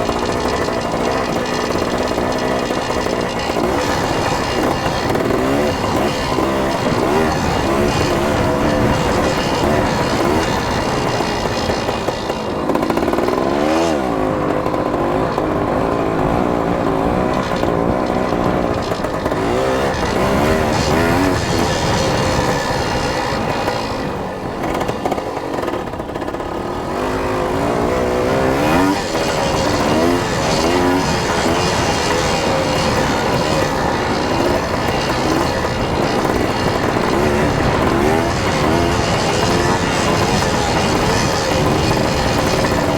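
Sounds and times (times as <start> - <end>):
dirt bike engine revving: 0.0 - 42.9
dense rushing noise: 28.6 - 42.9.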